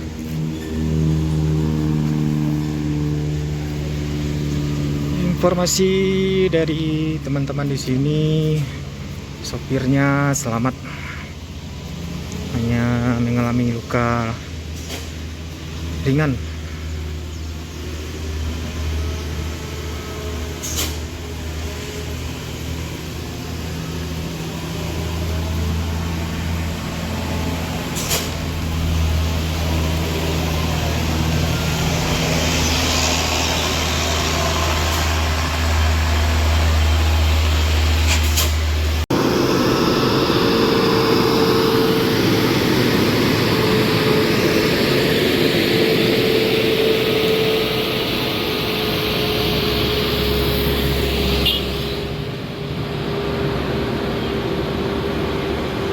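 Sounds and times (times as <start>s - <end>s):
heavy vehicle engine rumbling: 0.0s - 55.9s
road noise drone with faint whine: 0.0s - 55.9s.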